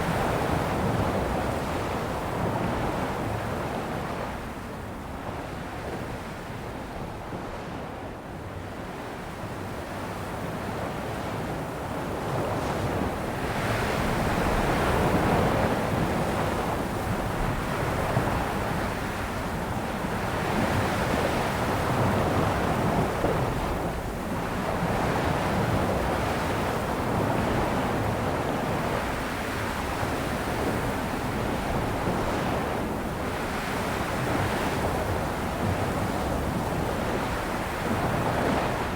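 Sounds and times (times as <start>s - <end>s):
sea waves breaking on shore: 13.0s - 38.9s.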